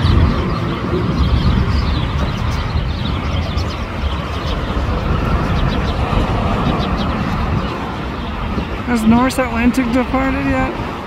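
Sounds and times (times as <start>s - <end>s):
jet engine low rumble: 0.0s - 11.0s.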